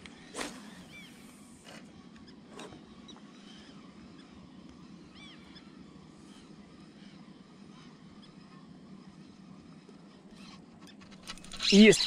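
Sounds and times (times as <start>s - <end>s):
bird chirping: 11.2s - 12.0s.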